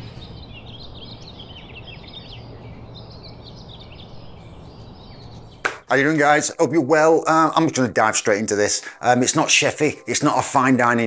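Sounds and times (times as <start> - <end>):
small birds chirping: 0.0 - 6.5
low outdoor hum: 0.0 - 9.3.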